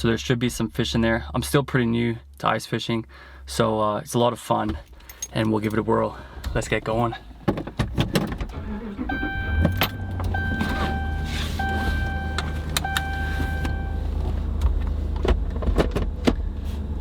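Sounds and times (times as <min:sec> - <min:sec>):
truck engine idling: 0:08.6 - 0:14.6
dashboard warning chime: 0:09.0 - 0:14.2.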